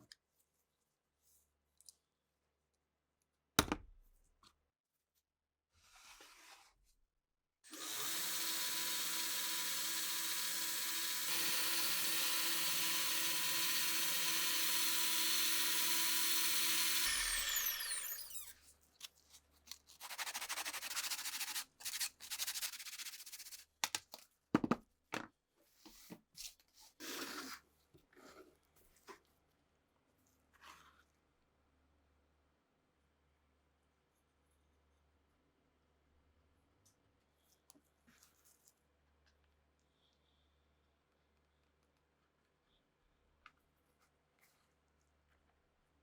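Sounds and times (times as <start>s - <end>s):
small power tool whining: 7.7s - 18.6s.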